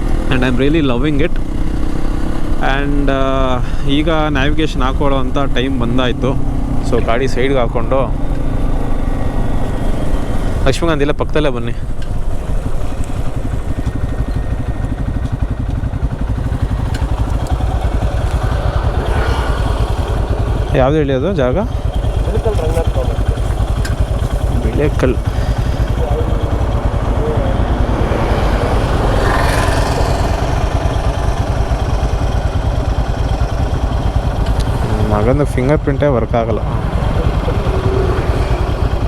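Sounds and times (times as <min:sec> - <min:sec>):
motorcycle engine idling: 0:00.0 - 0:39.0.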